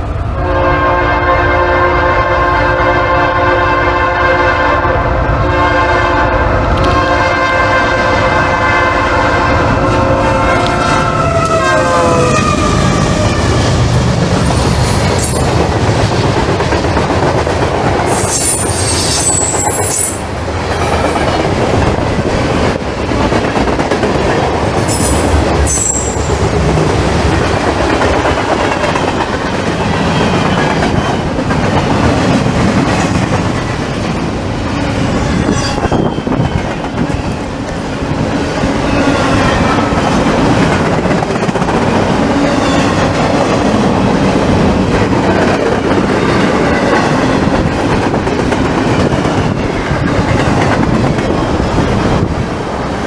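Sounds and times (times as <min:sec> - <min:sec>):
train horn: 0:00.2 - 0:13.8
high wheel squeals: 0:14.4 - 0:15.7, 0:18.1 - 0:21.2, 0:24.8 - 0:26.4.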